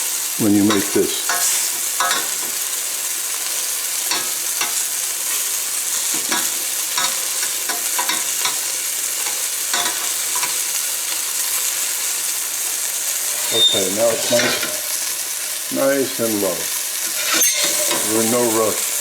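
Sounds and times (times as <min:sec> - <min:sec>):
chicken sizzling in hot oil: 0:00.0 - 0:19.0
utensil scraping a pan: 0:00.7 - 0:02.7, 0:13.1 - 0:15.5, 0:16.8 - 0:19.0.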